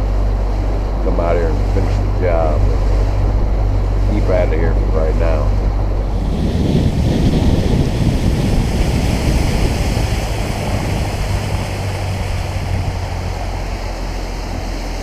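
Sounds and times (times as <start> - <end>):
boat engine hum: 0.0 - 15.0
wind and water rushing past hull: 0.0 - 15.0.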